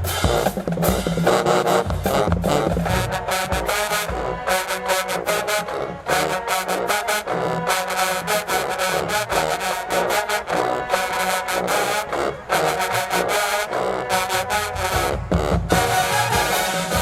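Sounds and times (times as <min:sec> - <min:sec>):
driving drum beat: 0:00.0 - 0:06.3, 0:14.7 - 0:17.0
marching band brass: 0:00.0 - 0:17.0.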